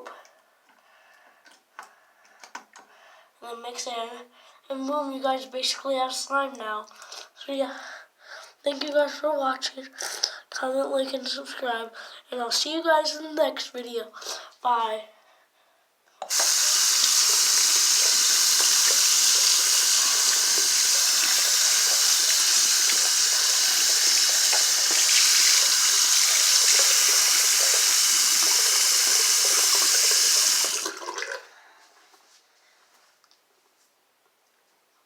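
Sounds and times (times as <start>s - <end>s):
tap water running into sink: 16.3s - 31.4s.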